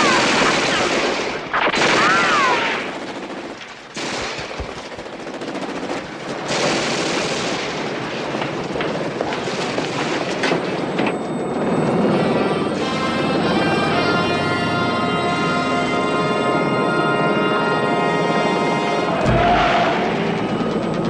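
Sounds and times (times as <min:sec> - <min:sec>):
rapid automatic gunfire: 0:00.0 - 0:10.3.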